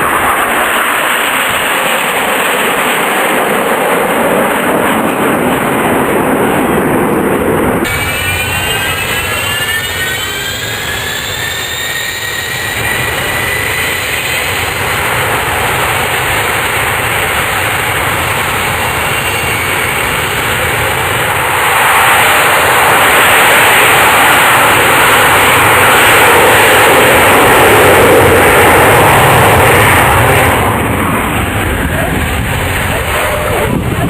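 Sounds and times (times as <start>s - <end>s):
jet engine rush: 0.0s - 34.0s
faint rising whine: 7.6s - 34.0s.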